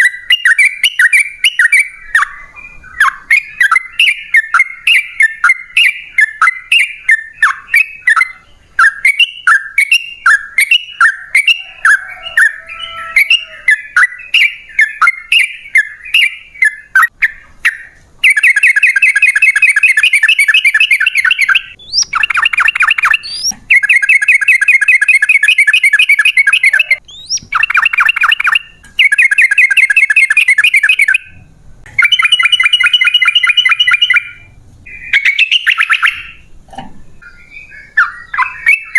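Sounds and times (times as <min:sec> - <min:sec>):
bird bubbly chirps: 0:13.7 - 0:31.4, 0:32.0 - 0:36.5, 0:37.2 - 0:38.9.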